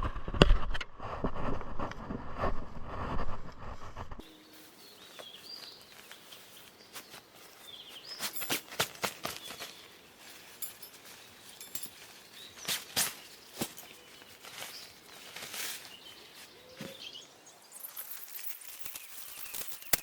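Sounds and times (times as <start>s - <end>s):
sharp clicks and crackles: 18.3s - 20.0s.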